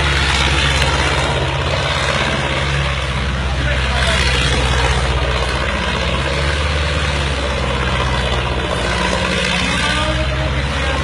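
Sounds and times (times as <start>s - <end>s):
tractor engine running steadily: 0.0s - 11.0s.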